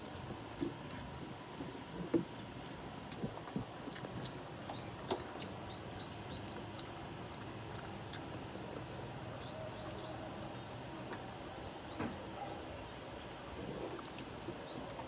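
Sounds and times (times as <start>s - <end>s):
small bird chirping: 3.8s - 13.3s.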